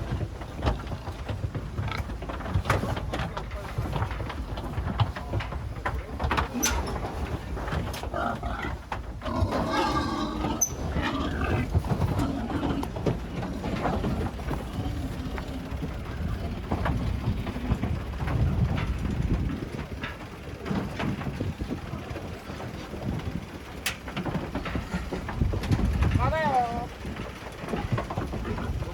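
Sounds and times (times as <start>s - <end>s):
knocks and clatter: 0.0s - 28.9s
pigs squealing and grunting: 8.0s - 15.6s.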